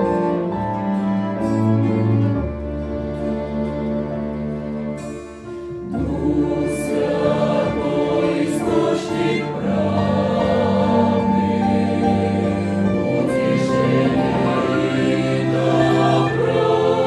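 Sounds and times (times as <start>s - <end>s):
instrumental accompaniment: 0.0s - 17.0s
church choir singing a hymn: 5.8s - 17.0s.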